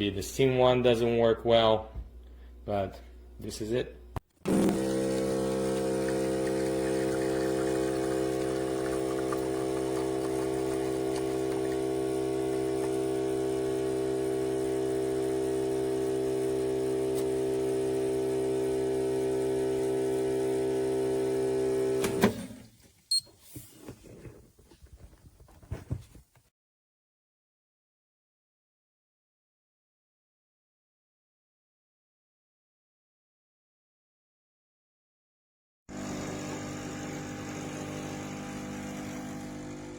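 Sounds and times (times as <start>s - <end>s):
espresso machine pump humming: 4.5s - 22.3s, 35.9s - 39.9s.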